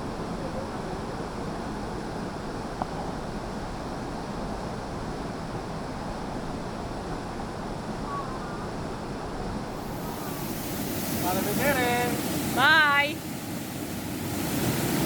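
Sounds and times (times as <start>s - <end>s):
waterfall roaring: 9.7s - 15.0s.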